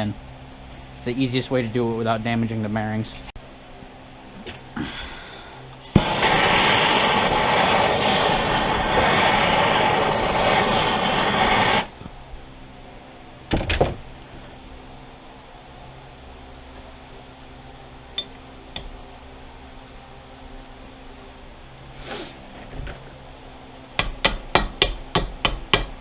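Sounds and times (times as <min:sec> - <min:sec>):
gas torch clicking alight: 0:05.7 - 0:12.0
gas torch flame hissing: 0:05.7 - 0:12.0, 0:21.9 - 0:22.4.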